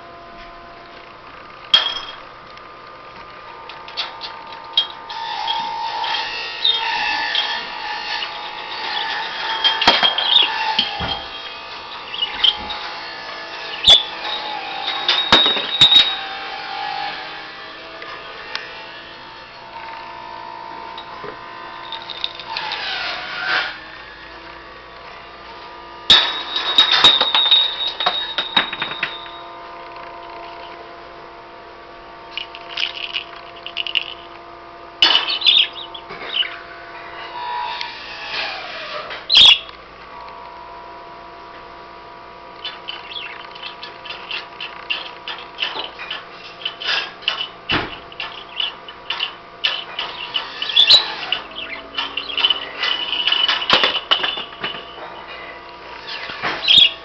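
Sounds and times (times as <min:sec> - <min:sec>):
budgie chirps: 0:12.0 - 0:12.7, 0:35.0 - 0:36.6, 0:39.3 - 0:39.7, 0:42.6 - 0:54.5
small metal bells ringing: 0:21.8 - 0:22.5, 0:26.1 - 0:29.5, 0:32.4 - 0:34.3.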